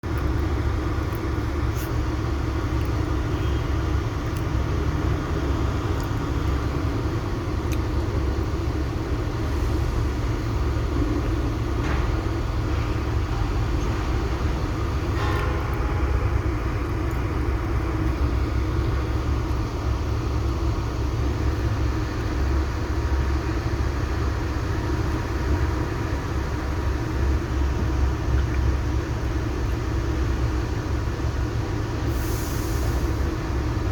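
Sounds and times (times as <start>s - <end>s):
heavy vehicle engine rumbling: 0.0s - 33.9s.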